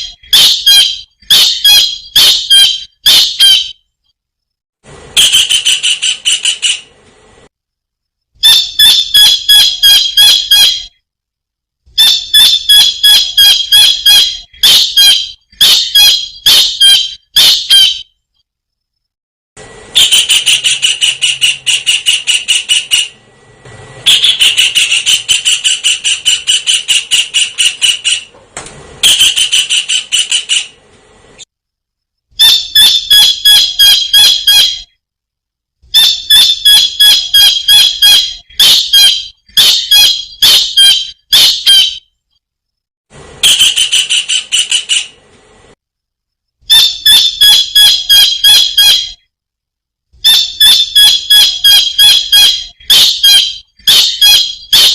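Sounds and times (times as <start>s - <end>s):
kingfisher shrill repeated calls: 0.0s - 3.8s, 12.0s - 18.1s, 24.1s - 28.3s, 36.0s - 42.1s, 46.7s - 49.2s, 50.2s - 54.9s.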